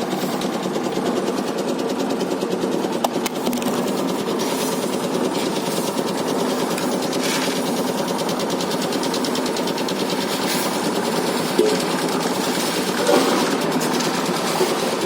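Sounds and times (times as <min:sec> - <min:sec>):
construction machinery rattling: 0:00.0 - 0:15.0.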